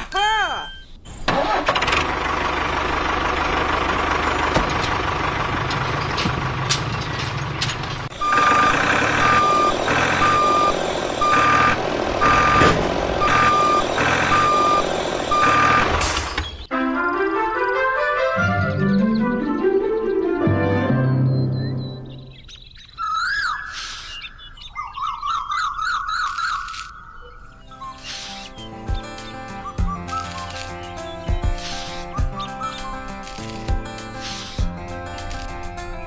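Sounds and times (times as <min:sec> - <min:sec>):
truck engine running: 0:01.1 - 0:17.4, 0:27.8 - 0:36.0
reversing alarm beeping: 0:08.1 - 0:16.6
music: 0:16.7 - 0:22.3, 0:28.5 - 0:36.0.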